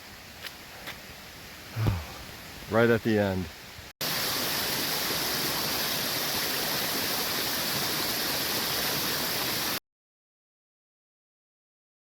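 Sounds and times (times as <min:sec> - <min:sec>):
stream rushing: 0:03.5 - 0:09.8.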